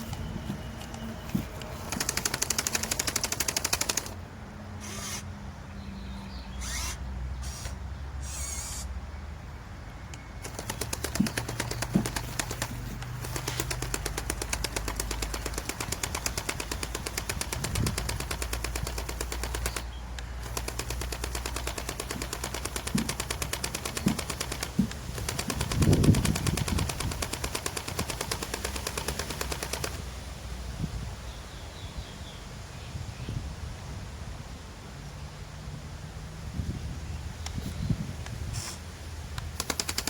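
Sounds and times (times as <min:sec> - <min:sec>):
toy excavator motors clattering: 0:00.0 - 0:04.2, 0:04.8 - 0:05.3, 0:06.6 - 0:09.0, 0:10.4 - 0:30.0, 0:39.4 - 0:40.0
low thumps digging soil: 0:20.4 - 0:29.9.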